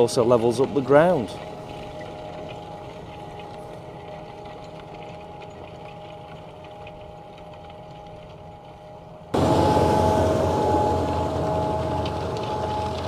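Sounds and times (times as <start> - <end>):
faint steady whine: 9.4 - 13.0
tractor engine running under load: 9.4 - 13.0.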